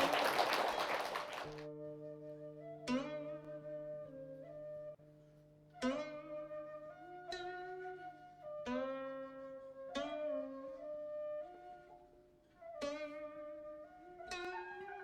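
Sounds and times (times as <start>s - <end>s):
flute-like woodwind melody: 6.3s - 15.0s.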